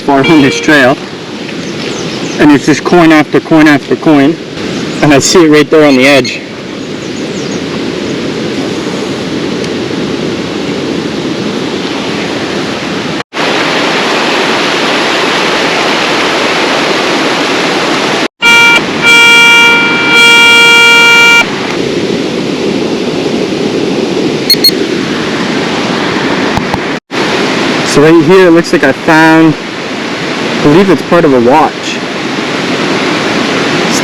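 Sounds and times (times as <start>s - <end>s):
steady rushing background noise: 0.0s - 34.0s
metal detector buzzing beeps: 0.1s - 0.9s, 5.9s - 6.3s, 18.4s - 21.5s, 24.5s - 24.8s.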